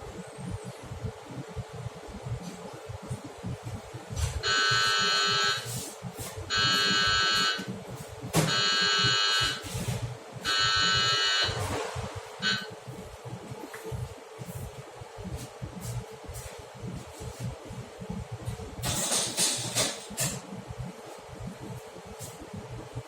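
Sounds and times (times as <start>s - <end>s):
steady low hum: 0.0s - 23.0s
electronic buzzer beeps: 4.4s - 5.8s, 6.5s - 7.7s, 8.4s - 11.8s, 12.4s - 12.8s.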